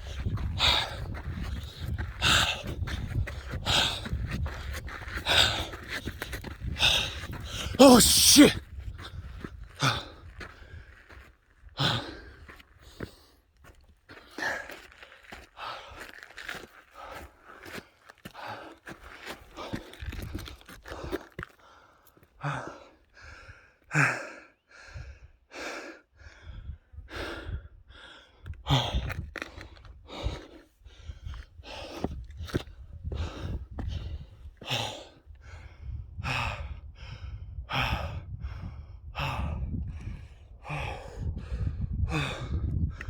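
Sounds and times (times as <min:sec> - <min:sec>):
person breathing hard: 0:07.6 - 0:08.5.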